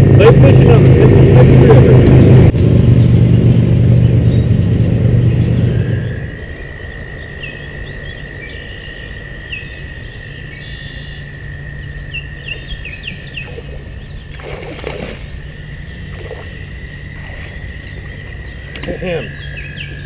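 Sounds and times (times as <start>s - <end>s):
high-pitched hum: 0.0s - 7.0s
low drone: 0.0s - 20.0s
small birds chirping: 4.0s - 20.0s.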